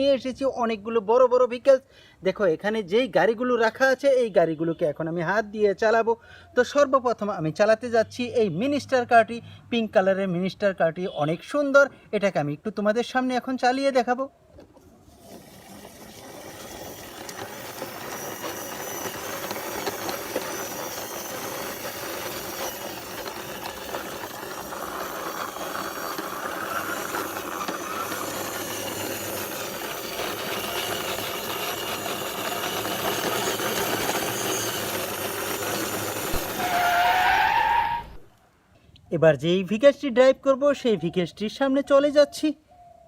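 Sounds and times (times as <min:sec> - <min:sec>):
toy car wheels rattling over ground: 0:14.6 - 0:37.2.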